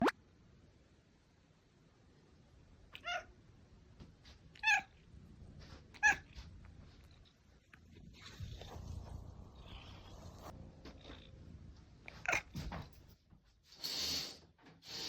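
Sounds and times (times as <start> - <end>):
cat meowing: 3.0 - 3.3, 4.6 - 4.9, 6.0 - 6.4, 12.2 - 12.5.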